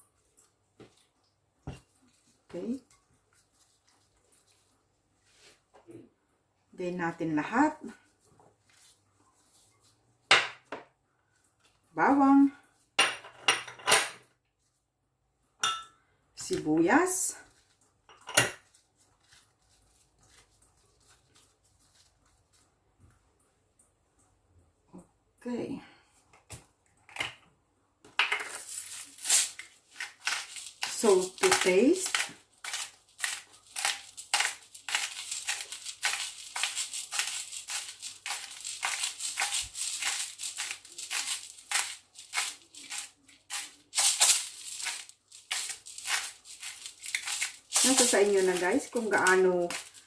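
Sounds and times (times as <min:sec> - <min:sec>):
salt rattling onto chicken: 0:28.7 - 0:50.0.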